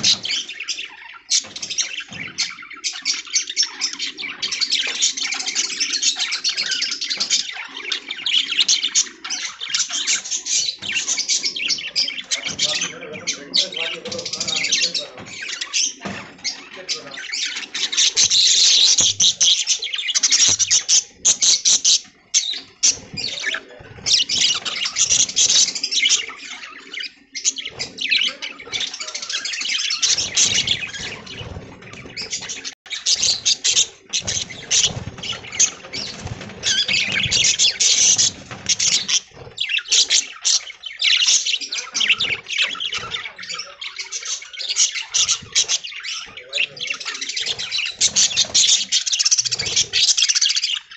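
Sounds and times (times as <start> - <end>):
budgies chattering: 0.0 - 50.9.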